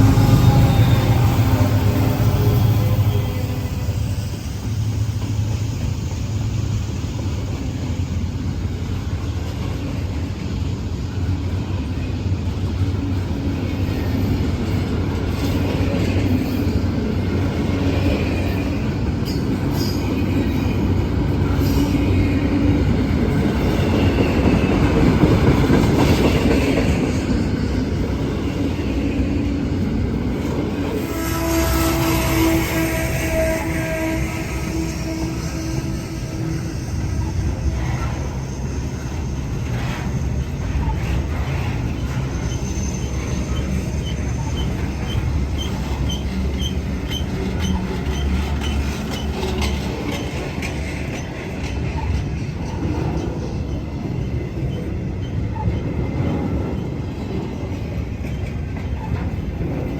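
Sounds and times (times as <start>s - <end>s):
freight train rumbling on rails: 0.0s - 59.9s
wheels clicking over rail joints: 39.0s - 59.9s.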